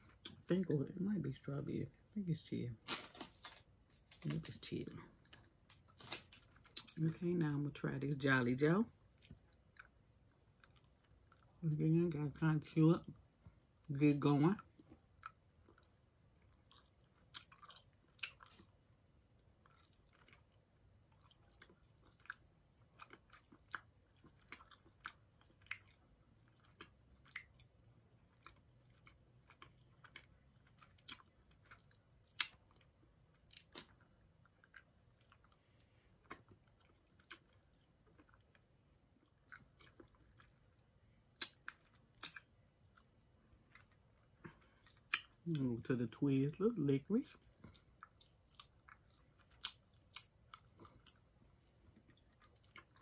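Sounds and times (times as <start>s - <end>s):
person chewing and sucking candy: 14.8s - 18.8s, 19.4s - 45.5s, 47.4s - 53.0s.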